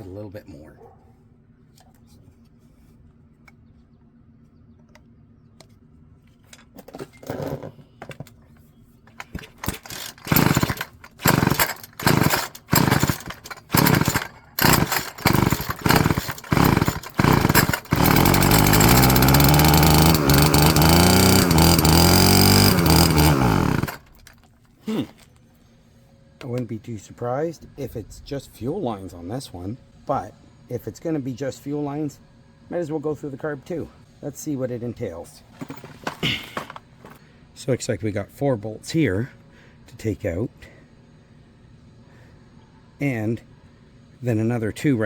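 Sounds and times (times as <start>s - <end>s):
string trimmer engine running: 9.1s - 24.4s
recoil starter pulls: 9.1s - 25.2s, 35.4s - 37.2s.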